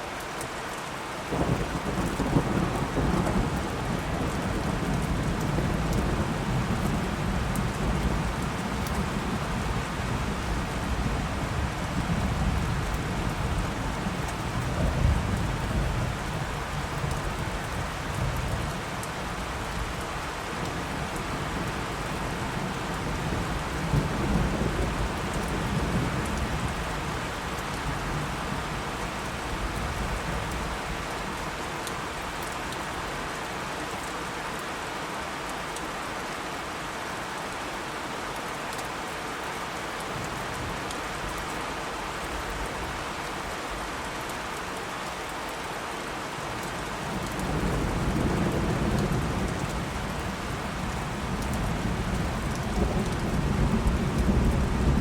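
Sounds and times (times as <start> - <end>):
steady rain falling: 0.0 - 55.0
low rolling thunder: 1.3 - 18.7, 47.0 - 55.0.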